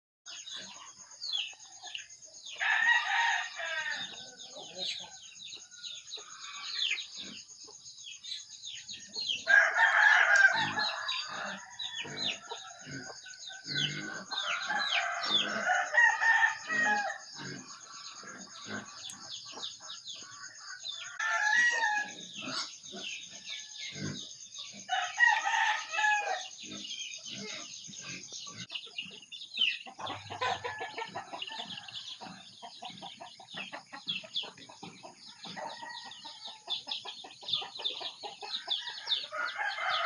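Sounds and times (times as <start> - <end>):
chickens clucking: 0.3 - 40.0
rooster crowing: 2.5 - 6.8, 9.4 - 17.4, 20.7 - 22.5, 24.9 - 26.6, 30.0 - 32.5, 35.2 - 36.7, 38.5 - 40.0.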